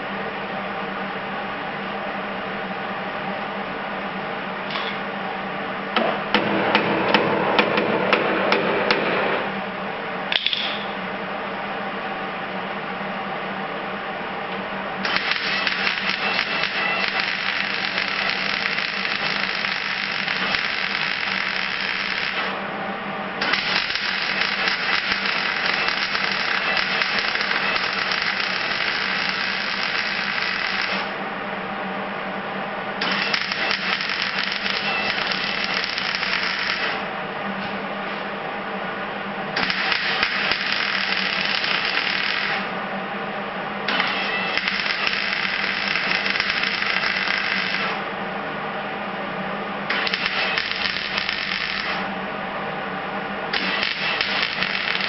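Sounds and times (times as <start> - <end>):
constant low hum: 0.0 - 55.0
welder crackling sizzle: 15.0 - 22.6, 23.4 - 31.2, 33.0 - 37.1, 39.6 - 42.7, 43.9 - 48.0, 49.9 - 52.1, 53.6 - 55.0.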